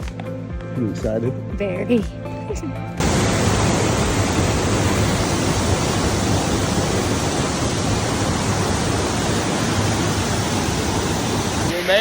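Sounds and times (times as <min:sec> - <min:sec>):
waterfall rushing: 0:03.0 - 0:12.0.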